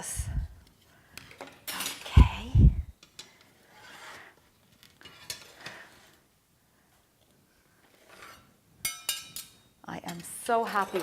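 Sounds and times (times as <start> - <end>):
utensil clinking on a plate: 8.8 - 11.0.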